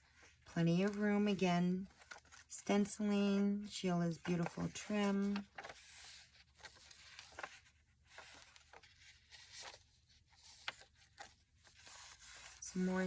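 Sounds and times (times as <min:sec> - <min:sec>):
paper pages rustling: 0:00.0 - 0:02.6, 0:04.1 - 0:13.0.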